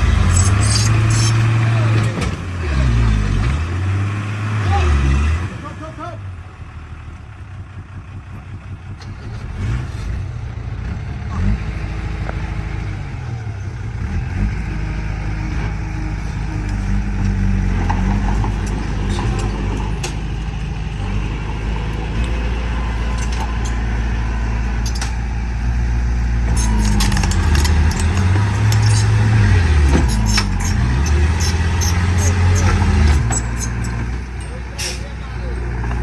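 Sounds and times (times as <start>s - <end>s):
heavy diesel engines under load: 0.0s - 36.0s
metallic clicks and rattles: 23.0s - 24.0s, 24.7s - 25.3s, 26.5s - 34.6s.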